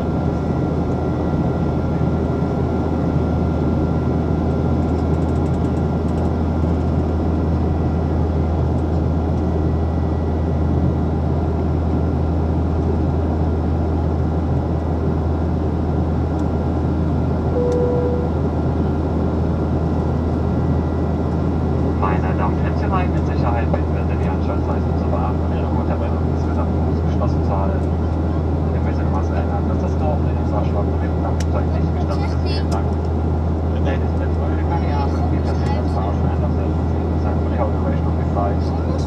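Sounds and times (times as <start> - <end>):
jet engine cabin drone: 0.0 - 39.0
deep even hum: 17.3 - 22.0
short single tone: 17.5 - 18.4.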